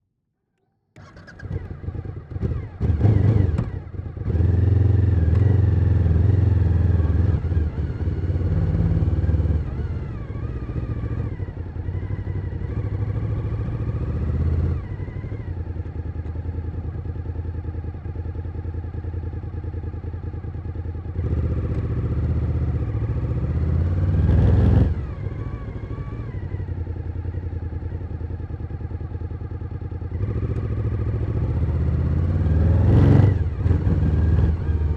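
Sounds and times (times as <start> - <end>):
motorcycle engine running: 1.0 - 34.9.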